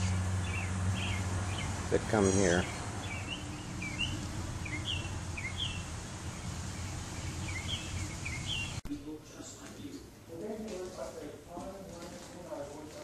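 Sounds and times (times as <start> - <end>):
songbirds chirping: 0.0 - 8.8.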